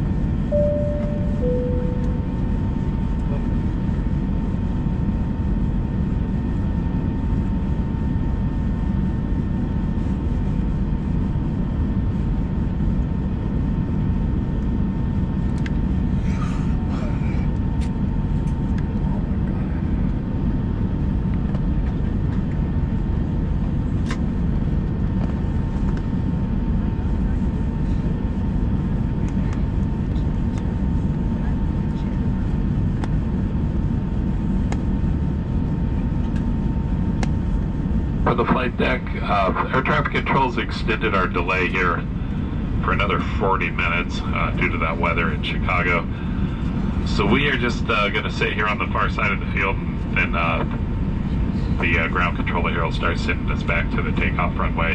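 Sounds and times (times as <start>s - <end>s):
airliner cabin roar: 0.0s - 54.9s
faint constant whine: 0.0s - 54.9s
two-tone cabin chime: 0.5s - 2.8s.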